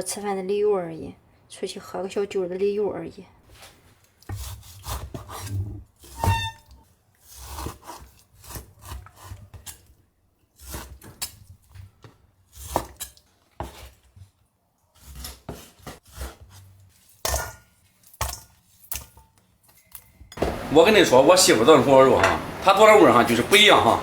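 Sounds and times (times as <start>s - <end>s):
dish clinking: 20.4s - 24.0s.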